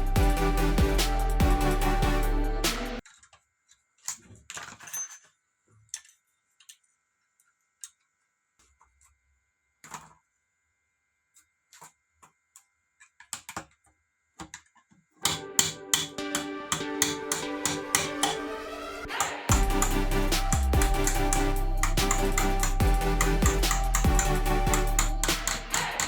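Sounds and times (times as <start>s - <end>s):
small parts clicking and tapping: 3.0s - 9.2s.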